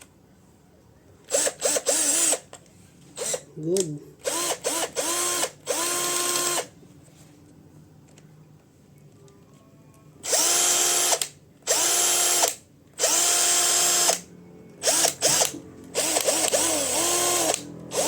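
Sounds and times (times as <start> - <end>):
cordless drill motor whine: 1.3 - 2.4, 4.2 - 6.7, 10.2 - 18.0.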